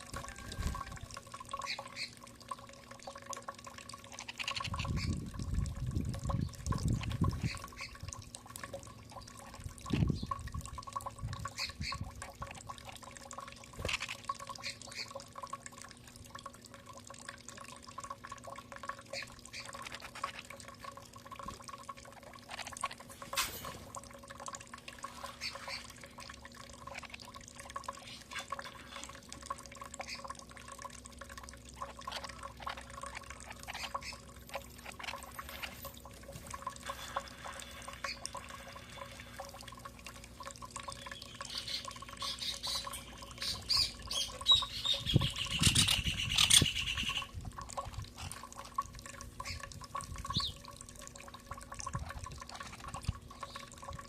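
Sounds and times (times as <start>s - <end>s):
faint steady hum: 0.0s - 54.0s
birds chirping: 31.8s - 35.8s, 40.8s - 47.3s, 50.3s - 50.6s.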